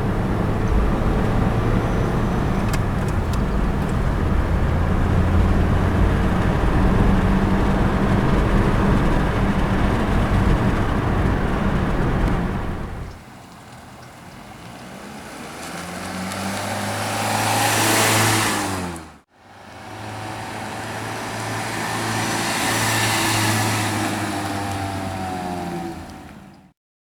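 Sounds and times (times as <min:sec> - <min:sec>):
car engine revving: 0:00.0 - 0:26.6
high-pitched engine whine: 0:17.0 - 0:26.1.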